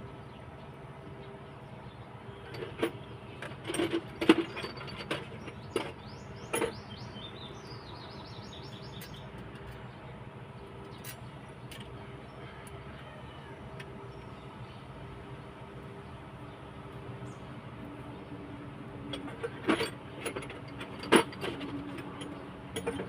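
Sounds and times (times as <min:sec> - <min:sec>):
hand tools clicking on metal: 0:19.1 - 0:23.0.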